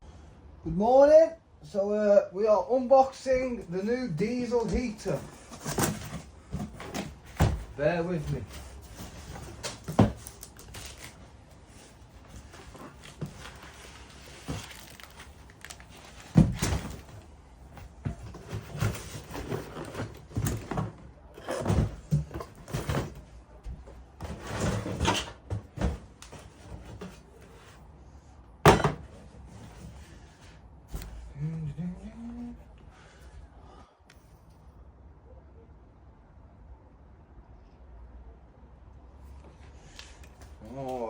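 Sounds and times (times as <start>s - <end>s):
packaging rustling and scraping: 4.7s - 23.3s.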